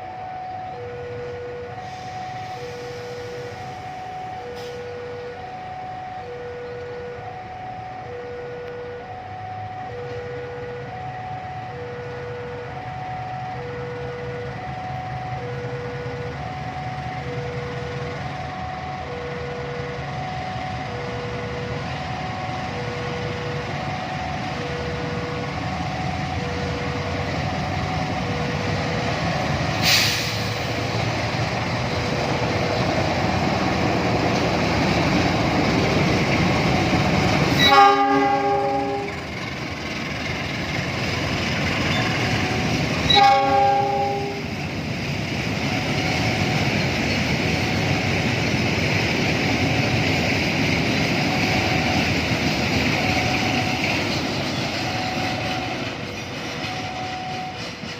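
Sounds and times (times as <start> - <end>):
level crossing alarm two tones: 0.0 - 30.9, 41.6 - 44.5, 51.1 - 57.7
train rumble: 0.0 - 57.9
locomotive horn: 36.4 - 39.3, 41.9 - 44.6.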